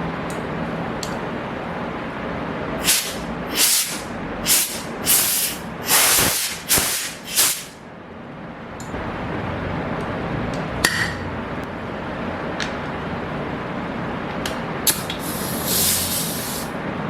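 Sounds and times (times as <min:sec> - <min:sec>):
machine hum: 0:00.0 - 0:17.0
compressed air hissing blasts: 0:02.8 - 0:07.8, 0:14.9 - 0:16.8.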